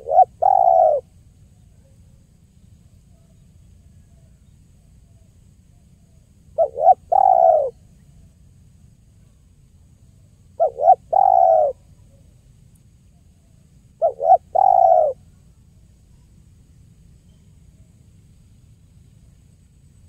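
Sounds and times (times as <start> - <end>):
dove cooing: 0.0 - 1.1, 6.6 - 7.8, 10.6 - 12.2, 14.0 - 15.3.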